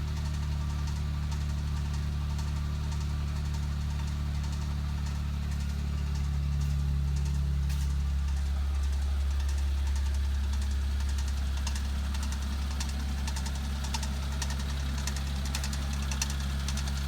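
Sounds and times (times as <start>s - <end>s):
car engine idling: 0.0s - 17.0s
faint repeated ticks: 9.4s - 17.0s.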